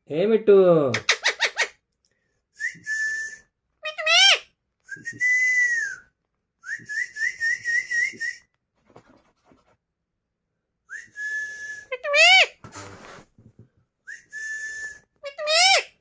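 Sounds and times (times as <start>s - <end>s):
whistles: 2.5s - 3.6s, 4.8s - 8.6s, 10.9s - 11.9s, 14.0s - 15.2s.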